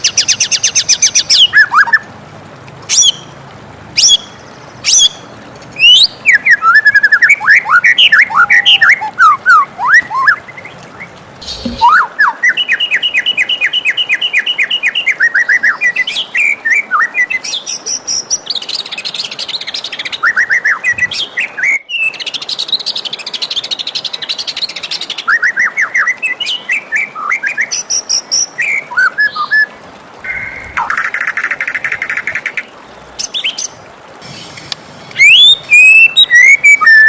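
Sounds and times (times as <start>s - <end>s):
bird singing whistled trills: 5.8s - 10.4s, 11.5s - 18.4s, 35.2s - 37.0s.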